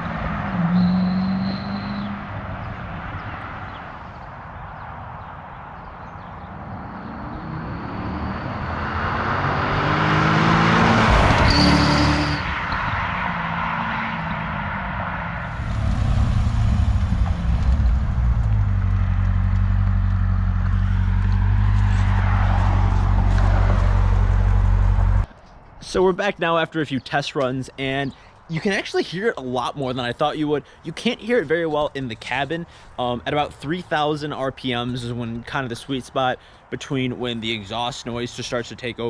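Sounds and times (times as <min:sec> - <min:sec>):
car exhaust accelerating: 0:00.0 - 0:03.3, 0:06.4 - 0:25.3
high exhaust whistle: 0:00.6 - 0:02.2, 0:11.3 - 0:12.6.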